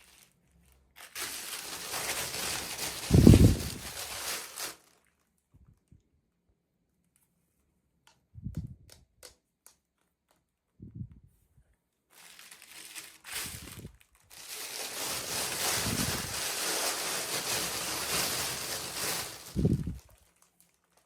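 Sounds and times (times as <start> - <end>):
plastic crinkling and rustling: 0.0 - 5.9, 12.1 - 21.0
plastic packaging clicks and crackles: 0.0 - 5.9, 12.1 - 21.0.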